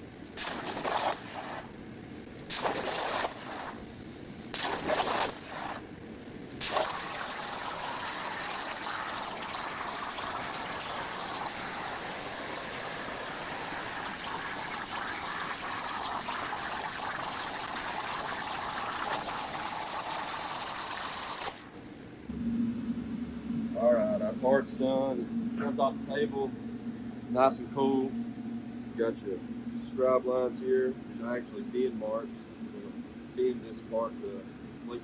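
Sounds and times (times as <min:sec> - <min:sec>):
plasma torch cutting steel: 0:00.0 - 0:22.3.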